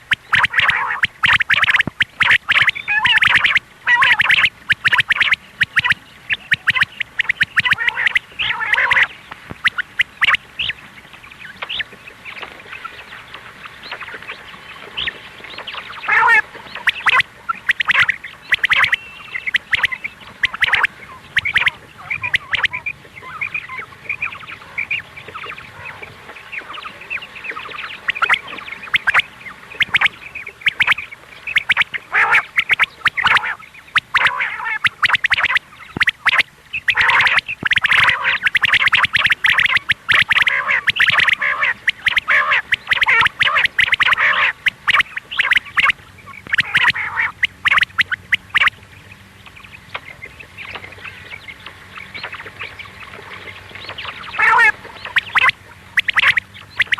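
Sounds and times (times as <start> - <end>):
quail calling: 0.0 - 10.8, 15.0 - 56.9.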